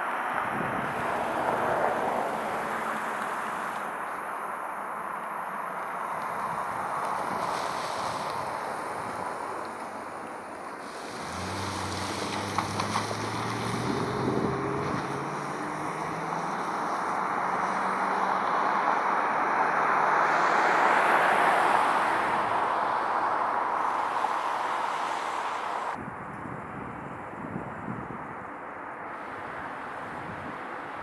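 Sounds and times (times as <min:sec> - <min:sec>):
vehicle passing: 0:10.8 - 0:26.0.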